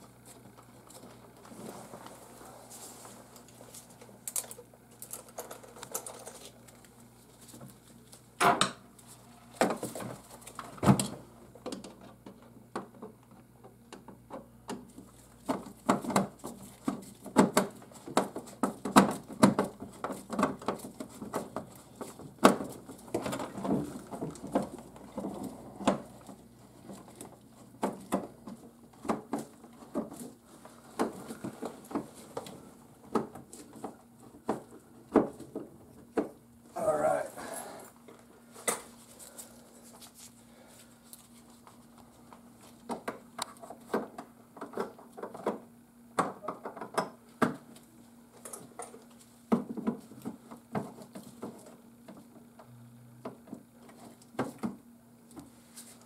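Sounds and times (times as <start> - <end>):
faint steady hum: 0.0 - 56.0
clicks and knocks of parts: 3.4 - 7.8.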